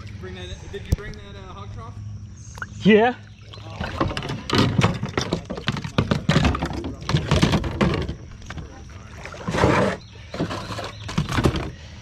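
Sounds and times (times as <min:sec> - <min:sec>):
steady low hum: 0:00.0 - 0:12.0
knocks and taps on kayak: 0:03.8 - 0:08.7.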